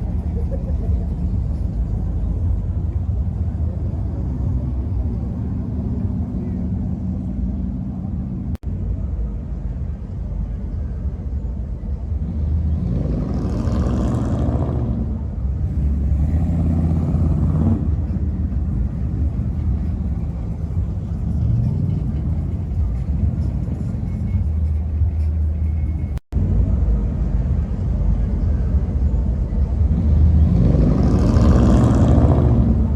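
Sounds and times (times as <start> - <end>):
car engines rumbling: 0.0 - 32.9
music playing: 15.5 - 32.9.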